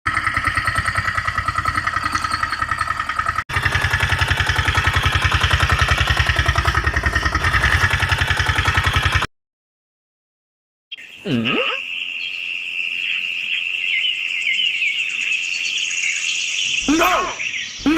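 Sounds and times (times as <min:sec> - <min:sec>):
tractor engine chugging: 0:00.0 - 0:09.3.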